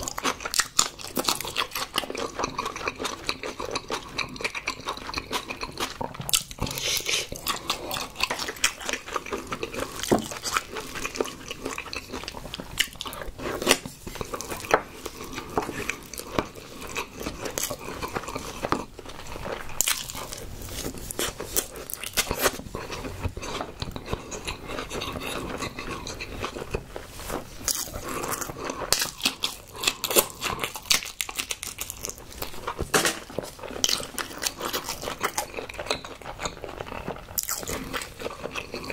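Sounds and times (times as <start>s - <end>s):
person chewing with wet smacks: 0.0s - 38.9s.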